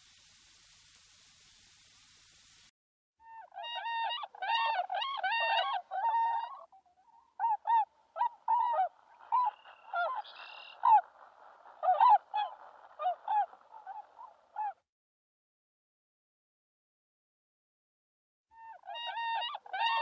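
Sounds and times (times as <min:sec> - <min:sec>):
swans honking: 0:07.4 - 0:14.8.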